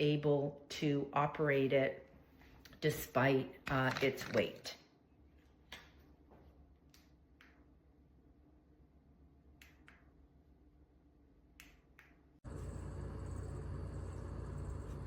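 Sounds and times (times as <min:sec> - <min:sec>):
low hum with hiss: 0:12.5 - 0:15.0.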